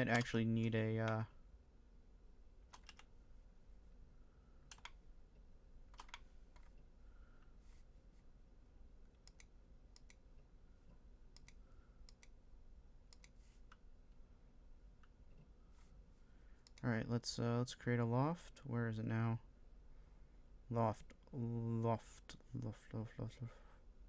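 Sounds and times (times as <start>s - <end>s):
low steady hum: 0.0s - 24.0s
computer mouse clicks: 0.1s - 0.4s, 2.7s - 3.1s, 4.7s - 5.0s, 5.9s - 6.8s, 9.1s - 10.2s, 11.3s - 12.4s, 13.1s - 13.9s, 16.6s - 16.8s.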